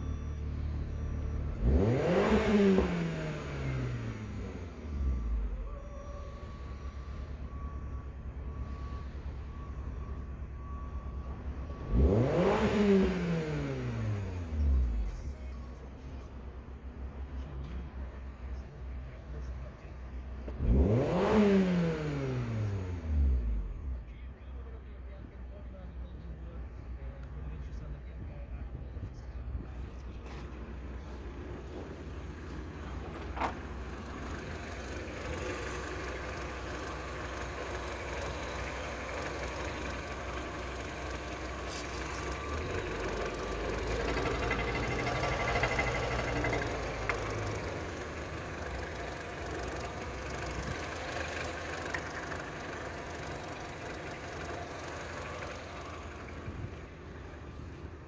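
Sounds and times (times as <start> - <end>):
car engine revving and idling: 0.0 - 58.0.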